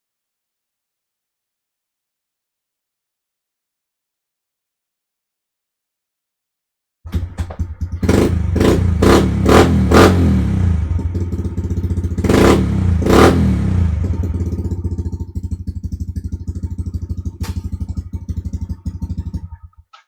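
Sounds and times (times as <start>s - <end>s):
motorbike engine revving and idling: 7.1s - 19.9s.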